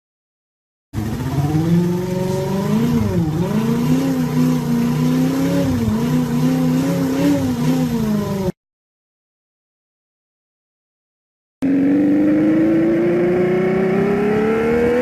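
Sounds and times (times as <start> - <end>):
motorcycle engine sound running fast: 0.9 - 8.5, 11.6 - 15.0.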